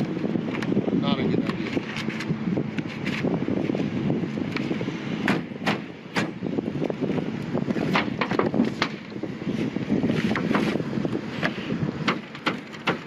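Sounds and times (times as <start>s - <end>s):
wind buffeting microphone: 0.0s - 13.0s
hand tools on sheet-metal roof: 4.6s - 6.4s, 7.7s - 13.0s.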